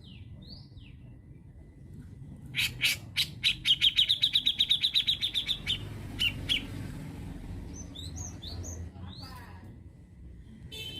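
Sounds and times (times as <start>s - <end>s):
bird singing: 0.0s - 6.9s, 7.6s - 9.4s.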